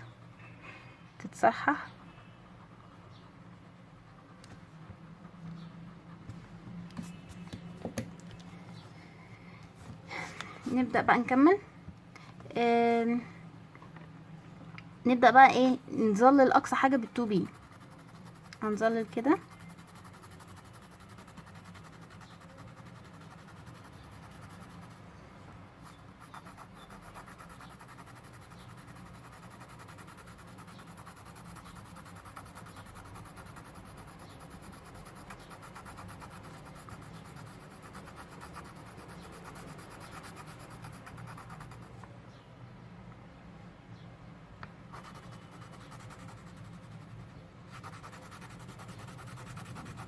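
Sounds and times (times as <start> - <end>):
pencil scratching on paper: 16.2 - 25.1, 25.8 - 41.9, 44.9 - 50.0.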